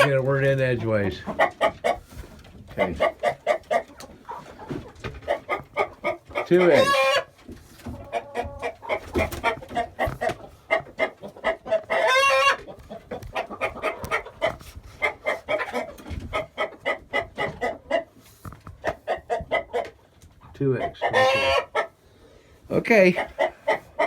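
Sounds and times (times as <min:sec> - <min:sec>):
chickens clucking: 0:00.0 - 0:24.0
chicken drawn-out call: 0:02.8 - 0:18.1, 0:21.0 - 0:22.0.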